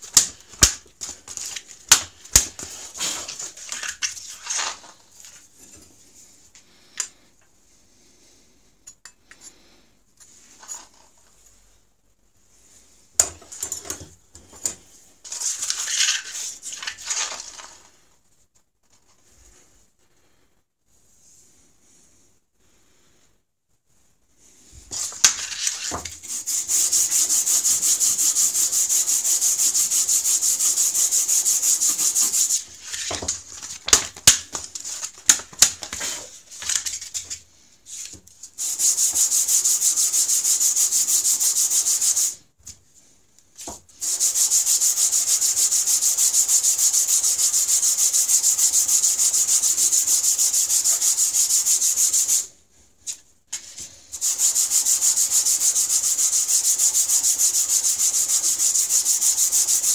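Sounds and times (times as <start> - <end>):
stone scraping on sandpaper: 2.6 - 4.9, 15.3 - 17.7, 24.9 - 33.7, 38.0 - 42.4, 44.0 - 52.5, 53.6 - 59.9
scattered knocks and scrapes: 24.9 - 28.0, 30.6 - 37.4.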